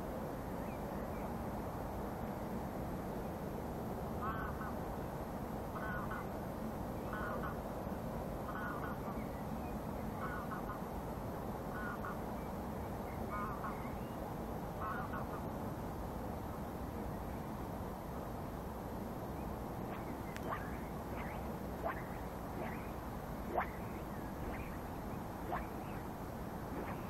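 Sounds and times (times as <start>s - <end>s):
wind: 0.0s - 27.0s
bird calling: 19.8s - 26.1s, 26.7s - 27.0s.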